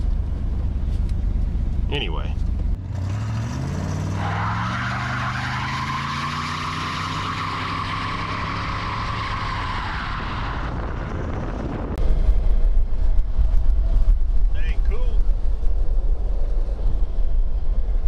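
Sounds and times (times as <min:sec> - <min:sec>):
low rumble: 0:00.0 - 0:03.0, 0:10.3 - 0:18.0
car engine accelerating: 0:00.0 - 0:14.6.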